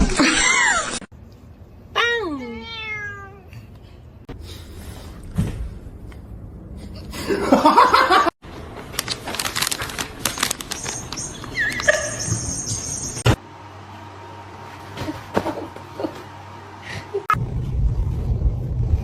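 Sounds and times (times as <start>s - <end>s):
person laughing: 7.0s - 8.3s.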